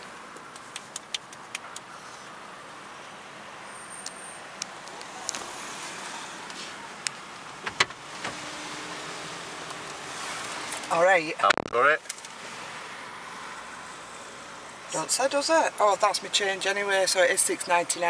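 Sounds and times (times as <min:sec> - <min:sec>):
car wash spray and brushes: 0:07.5 - 0:10.9.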